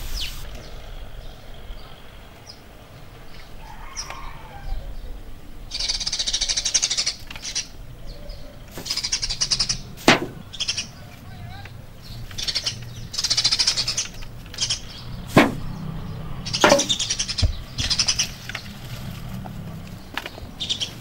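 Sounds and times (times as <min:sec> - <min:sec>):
bird chattering trills: 0:05.2 - 0:18.7
sharp crack: 0:10.0 - 0:10.9, 0:14.0 - 0:17.7.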